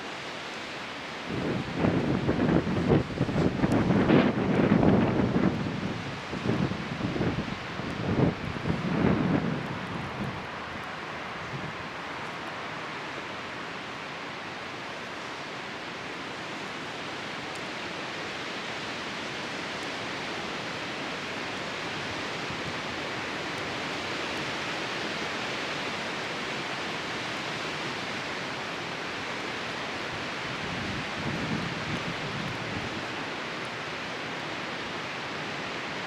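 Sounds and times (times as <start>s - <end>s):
strong wind rushing: 1.3s - 10.5s
faint fire ticks: 3.4s - 3.8s, 17.4s - 17.8s, 22.3s - 24.1s.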